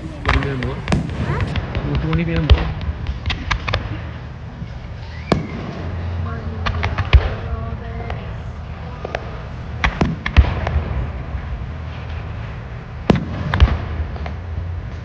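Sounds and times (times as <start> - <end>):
fireworks bangs: 0.0 - 1.6
low rumble: 0.0 - 1.9.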